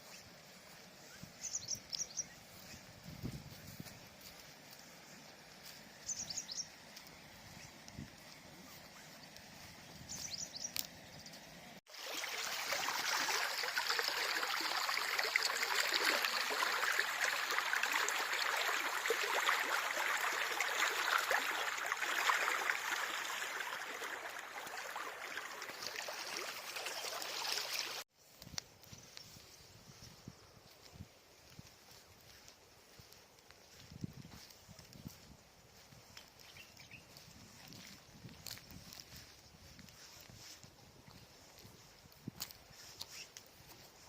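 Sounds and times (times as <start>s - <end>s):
river water rushing: 11.9s - 28.0s.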